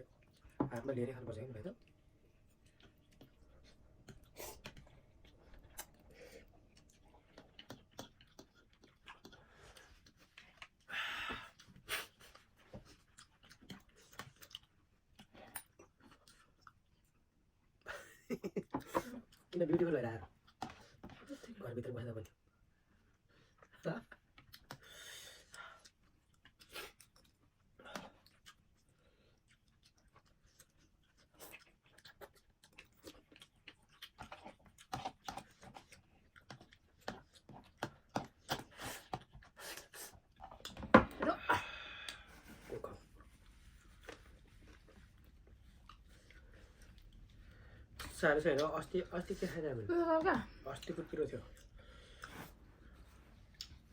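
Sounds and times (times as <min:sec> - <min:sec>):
wet chewing with clicks: 0:01.8 - 0:17.8, 0:23.1 - 0:40.8, 0:43.2 - 0:49.5, 0:50.7 - 0:53.9
person eating noodles: 0:24.5 - 0:40.8.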